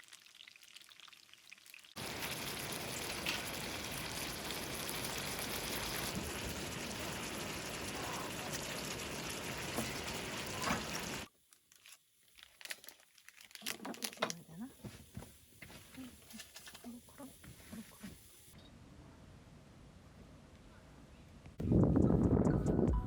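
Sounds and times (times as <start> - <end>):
food sizzling in a hot pan: 0.0 - 11.3.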